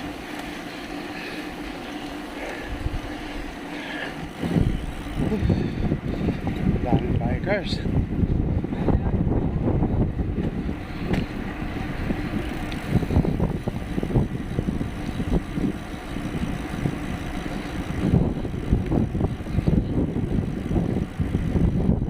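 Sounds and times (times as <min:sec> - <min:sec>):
road noise: 0:00.0 - 0:22.0
wind buffeting microphone: 0:02.4 - 0:22.0.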